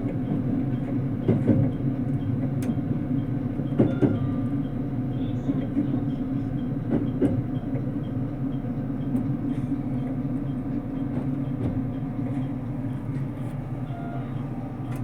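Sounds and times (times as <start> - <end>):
train carriage running rumble: 0.0 - 15.0.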